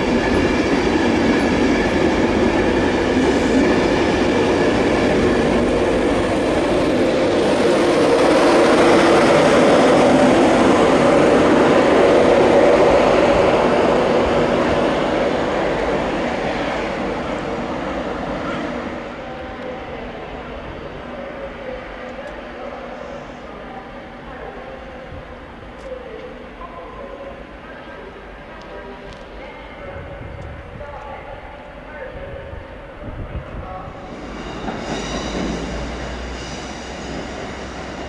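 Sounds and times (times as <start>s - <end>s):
train wheels rumbling on track: 0.0s - 38.0s
steady high tones: 34.0s - 38.0s.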